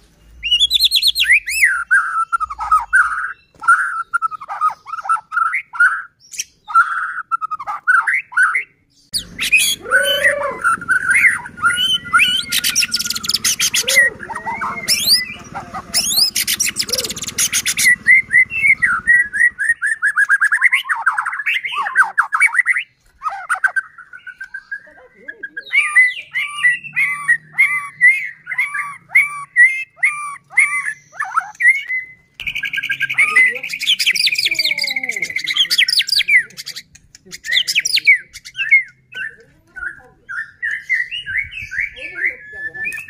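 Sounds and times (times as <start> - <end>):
songbird whistled song: 0.0 - 43.0
bird rattling bursts: 14.9 - 19.7.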